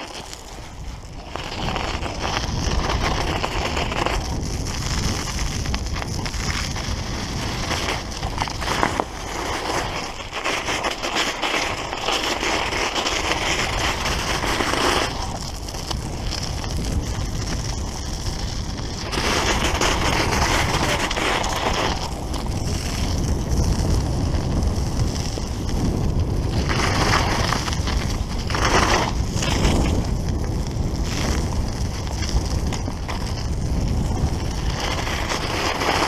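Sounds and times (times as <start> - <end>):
bike tyres crunching over snow: 0.0 - 36.0
wind on microphone: 0.0 - 36.0.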